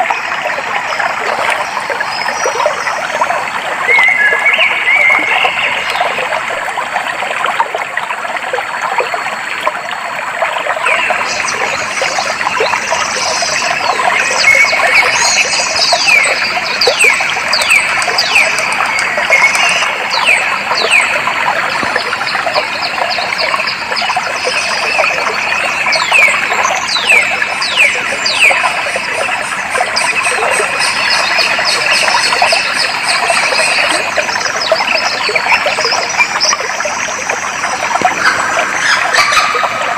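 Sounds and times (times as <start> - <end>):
water flowing: 0.0 - 39.9
birds calling: 37.9 - 39.9.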